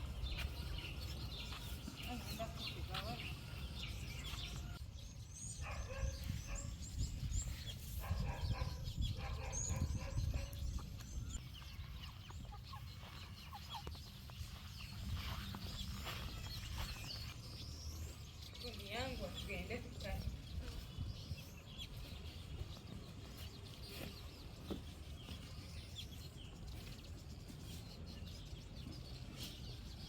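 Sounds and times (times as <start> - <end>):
high bird chirps: 0.0 - 26.6
chickens clucking: 10.0 - 14.6.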